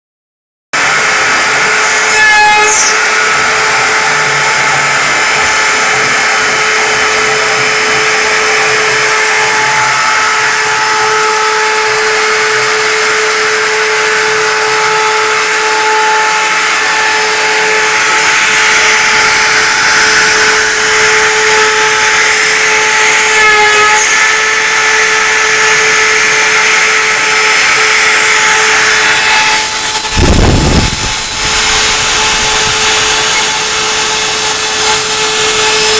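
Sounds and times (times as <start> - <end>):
router spindle whine: 0.8 - 35.9.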